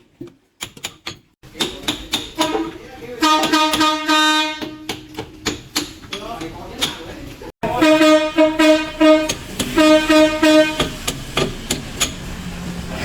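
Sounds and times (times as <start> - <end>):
horn short toots: 2.4 - 4.9, 7.6 - 11.0.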